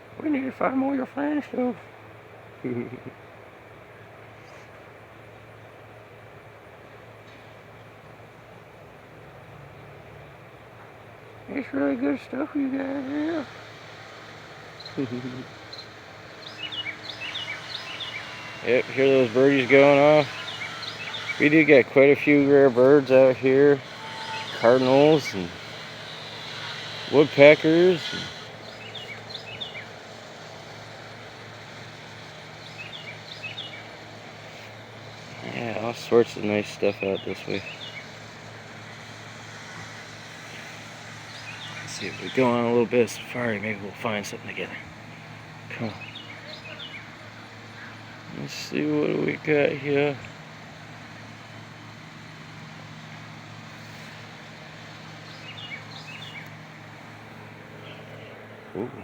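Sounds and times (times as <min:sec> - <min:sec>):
steady low hum: 0:00.0 - 0:59.0
birds chirping: 0:09.7 - 0:59.0
steady hiss: 0:10.6 - 0:59.0
small bird chirping: 0:14.7 - 0:21.7, 0:23.8 - 0:30.0, 0:31.6 - 0:34.0, 0:36.9 - 0:38.2, 0:39.7 - 0:42.5, 0:55.2 - 0:56.6.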